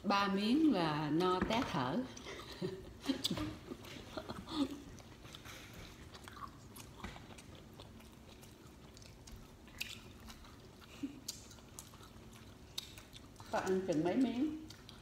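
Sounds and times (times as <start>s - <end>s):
person chewing: 2.2s - 15.0s.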